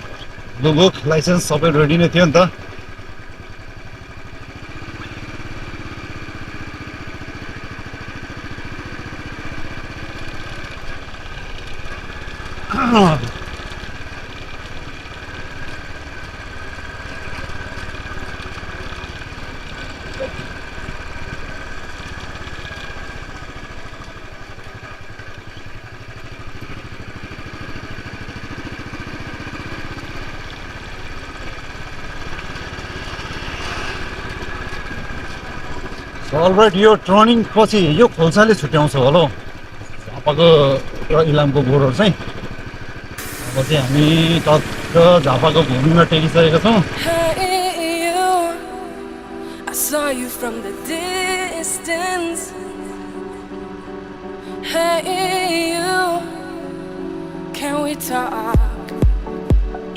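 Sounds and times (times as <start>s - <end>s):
motorcycle engine running: 0.0s - 59.9s
road noise: 0.0s - 59.9s
steady hum: 42.6s - 59.9s.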